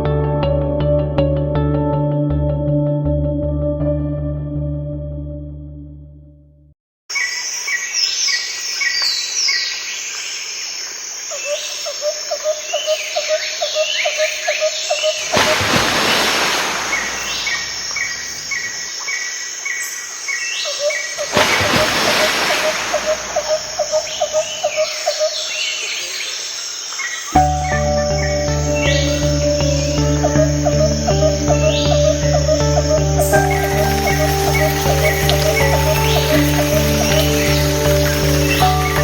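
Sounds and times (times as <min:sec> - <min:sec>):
birds chirping and trilling: 0:11.3 - 0:39.0
fast pulsed bird notes: 0:14.9 - 0:18.9, 0:21.2 - 0:25.6, 0:27.4 - 0:39.0.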